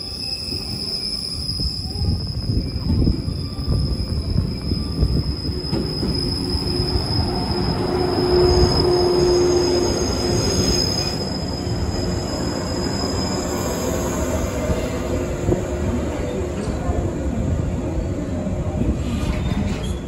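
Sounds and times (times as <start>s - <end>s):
wheel squeal: 0.0s - 14.1s
train wheels rumbling on rails: 0.0s - 20.0s.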